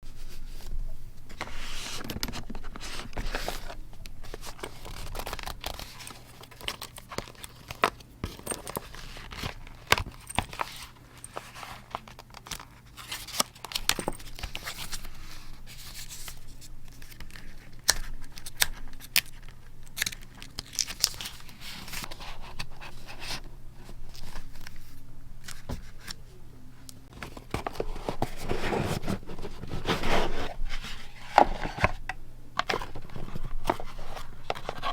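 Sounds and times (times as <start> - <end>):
faint low hum: 0.1 - 34.9
paper rustling and tearing: 1.3 - 9.6.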